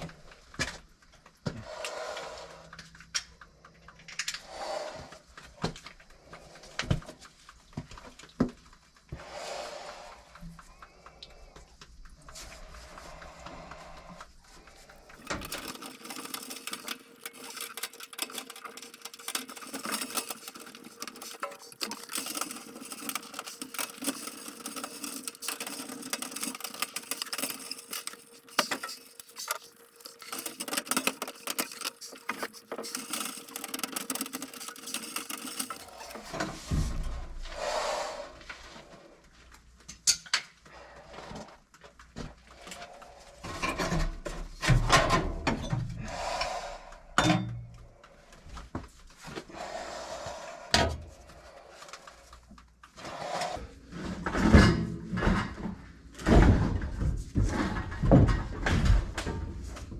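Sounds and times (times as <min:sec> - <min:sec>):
scraping of tools: 0:14.9 - 0:36.9
dense steady rattling: 0:15.0 - 0:36.4.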